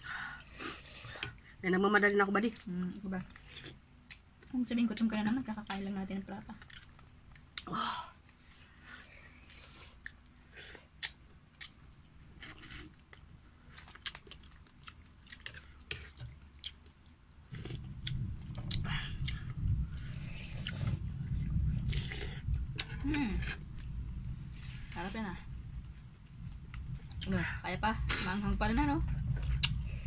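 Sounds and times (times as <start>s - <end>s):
close chewing with crunches: 6.5s - 23.9s, 29.0s - 30.0s
steady low rumble: 13.2s - 30.0s.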